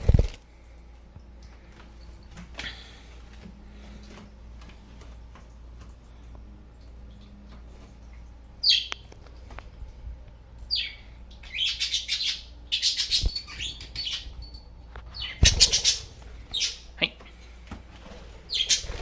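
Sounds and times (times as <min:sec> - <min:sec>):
budgerigars chirping: 0:10.7 - 0:14.3, 0:15.2 - 0:16.9, 0:18.5 - 0:19.0.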